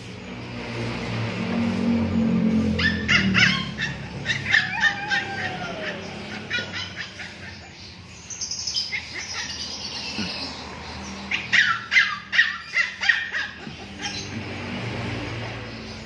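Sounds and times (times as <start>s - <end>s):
dog yelping and whining: 2.7s - 7.8s, 11.3s - 14.4s.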